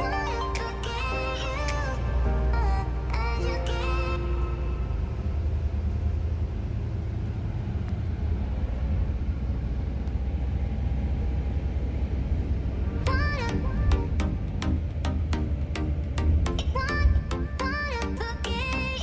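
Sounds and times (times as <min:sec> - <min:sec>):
music: 0:00.0 - 0:05.0, 0:13.0 - 0:19.0
low rumble of road vehicle: 0:00.0 - 0:19.0
road and wind noise: 0:00.0 - 0:19.0.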